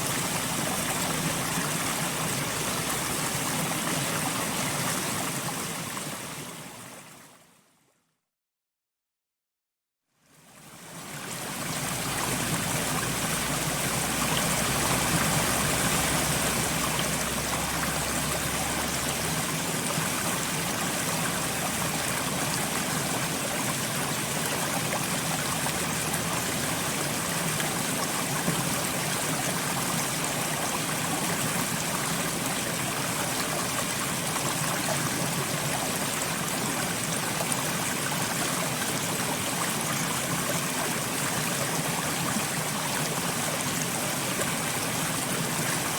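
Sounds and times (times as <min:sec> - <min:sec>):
rush of water: 0:00.0 - 0:07.5, 0:10.4 - 0:45.9.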